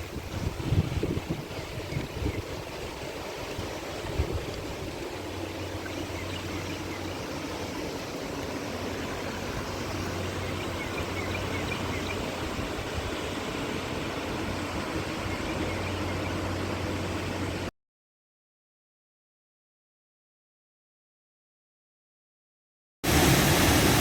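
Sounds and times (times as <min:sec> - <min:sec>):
small waterfall rushing: 0:00.0 - 0:17.7, 0:23.0 - 0:24.0.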